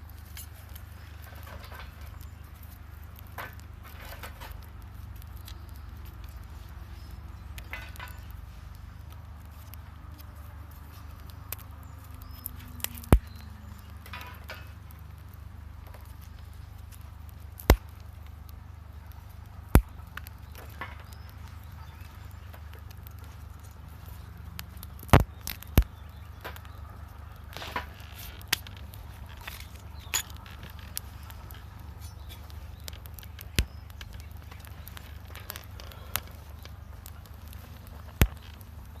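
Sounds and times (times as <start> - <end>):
sharp pops of burning wood: 0.0 - 39.0
wood fire crackling: 0.0 - 39.0
sharp loud fire pops: 17.6 - 17.9, 19.8 - 20.0.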